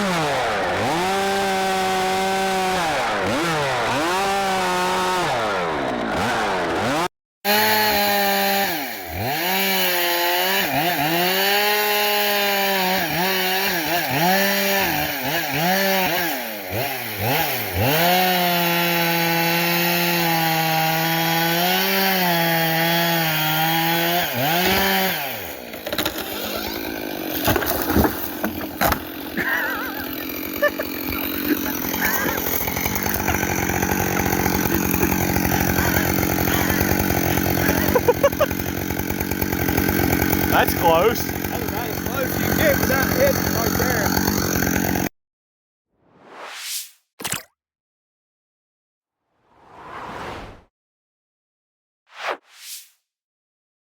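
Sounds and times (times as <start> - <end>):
chainsaw cutting wood: 0.0 - 45.1
wood cracking: 24.0 - 45.0.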